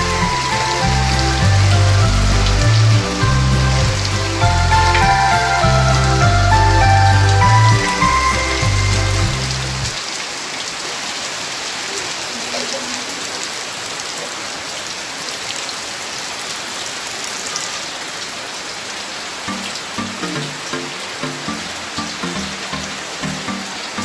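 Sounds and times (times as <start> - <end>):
music: 0.0 - 10.0, 19.5 - 24.0
steady rain falling: 0.0 - 24.0.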